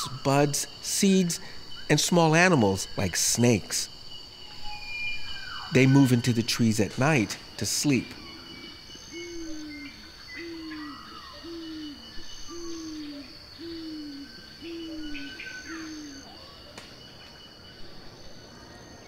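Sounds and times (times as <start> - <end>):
birds chirping: 0.0 - 19.0
insect trill: 0.0 - 19.0
bird hooting: 7.9 - 16.6.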